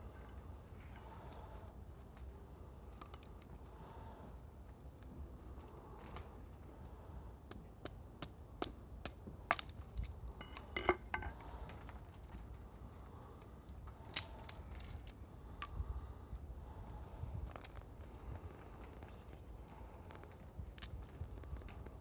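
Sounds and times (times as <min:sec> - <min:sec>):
campfire crackling and popping: 0:07.8 - 0:09.8.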